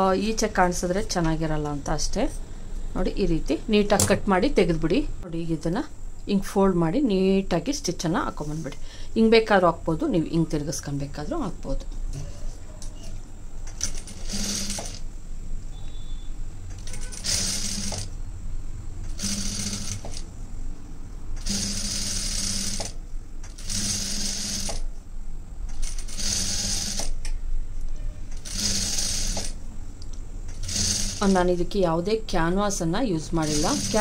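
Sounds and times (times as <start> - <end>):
sewing machine stitching: 13.8 - 15.0, 16.8 - 18.1, 19.1 - 20.2, 21.4 - 24.8, 25.8 - 27.2, 28.4 - 29.6, 30.5 - 31.5, 33.4 - 34.0.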